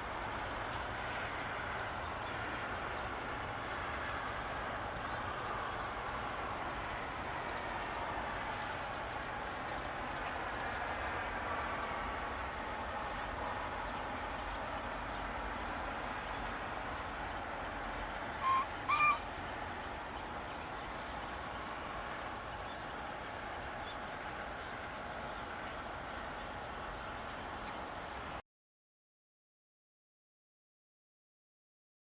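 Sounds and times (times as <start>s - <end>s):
steady background hum: 0.0s - 28.4s
pheasant crowing: 18.3s - 22.0s.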